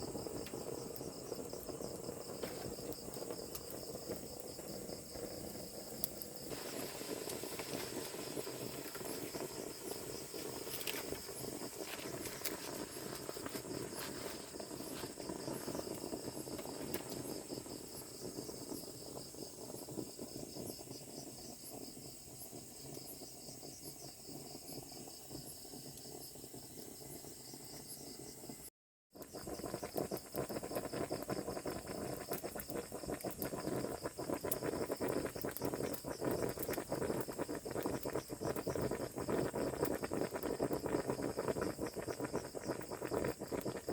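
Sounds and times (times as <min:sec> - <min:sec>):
low crackling: 0:00.0 - 0:27.0
insect chorus chirring: 0:00.0 - 0:43.9.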